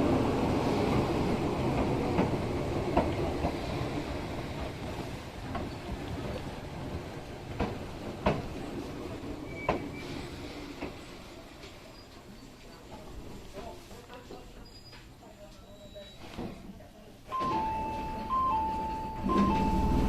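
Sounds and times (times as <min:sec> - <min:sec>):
electric train rumble: 0:00.0 - 0:11.2, 0:17.5 - 0:20.0.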